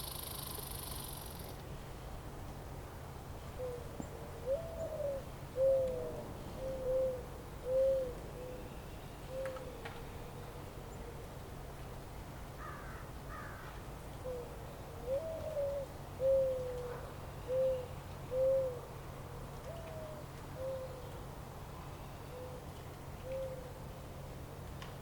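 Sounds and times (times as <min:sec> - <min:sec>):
faint higher bird calls: 0:00.0 - 0:01.6, 0:03.6 - 0:11.0, 0:12.6 - 0:18.9
bird hooting coos: 0:03.6 - 0:11.1, 0:14.2 - 0:18.9, 0:19.7 - 0:21.2, 0:22.0 - 0:23.8.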